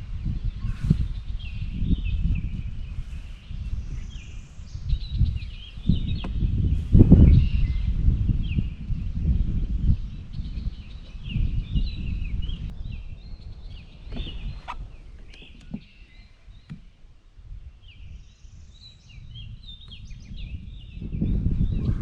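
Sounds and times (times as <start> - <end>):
birds calling and chattering: 0.0 - 22.0.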